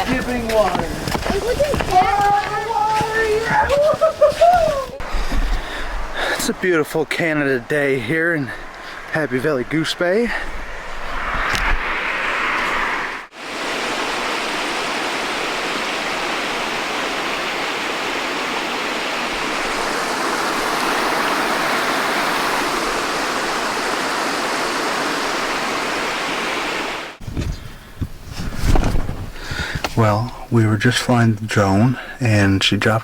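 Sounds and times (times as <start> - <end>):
rushing water: 0.0 - 10.5, 12.5 - 27.2.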